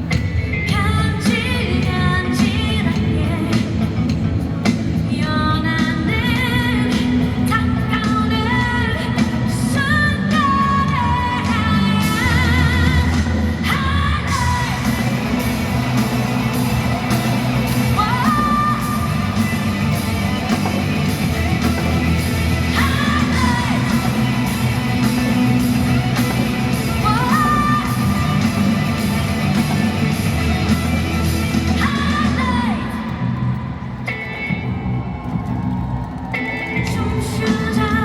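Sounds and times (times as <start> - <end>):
person singing: 5.0 - 33.4
live rock band playing: 6.9 - 32.4
crowd yelling: 12.0 - 38.0.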